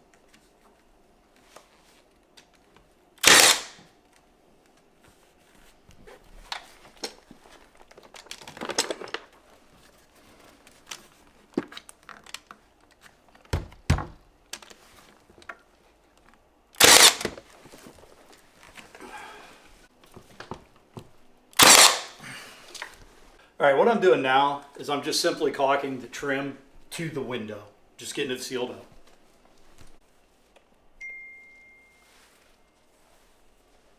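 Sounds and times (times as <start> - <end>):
knocks and clicks handling trim: 3.2 - 3.8, 10.9 - 15.6, 16.8 - 17.6
nail gun firing: 3.2 - 3.8, 13.6 - 14.3, 16.8 - 17.4, 21.6 - 22.2
low thumps: 13.6 - 14.3.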